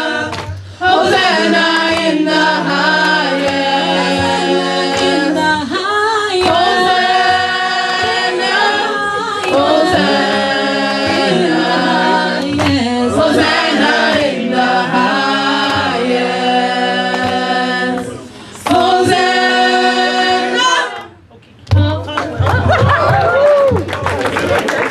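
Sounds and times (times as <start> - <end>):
choir singing a cappella: 0.0 - 21.2.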